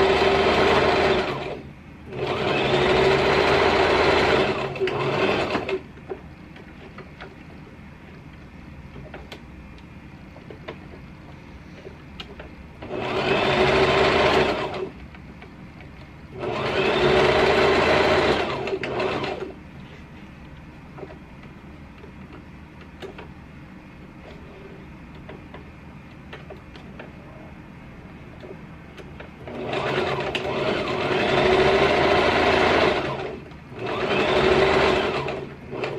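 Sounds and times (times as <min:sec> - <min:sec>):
sewing machine stitching: 0:00.0 - 0:05.9, 0:12.8 - 0:15.0, 0:16.3 - 0:19.6, 0:29.4 - 0:35.9.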